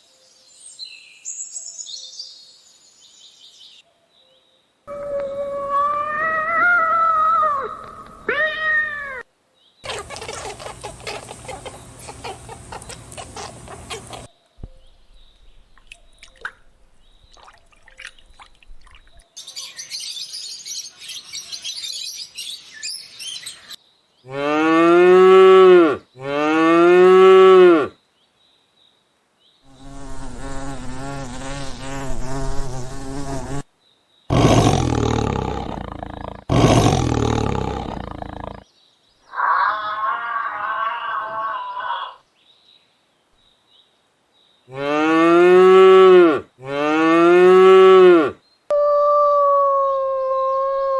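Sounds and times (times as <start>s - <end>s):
animal calls rising and falling: 4.9s - 9.2s, 39.3s - 42.2s
long wavering animal call: 4.9s - 9.2s, 39.3s - 42.2s, 47.5s - 50.9s
loud rough animal calls: 4.9s - 9.2s, 34.3s - 38.6s, 39.3s - 42.2s
high buzzing hiss: 29.7s - 33.7s.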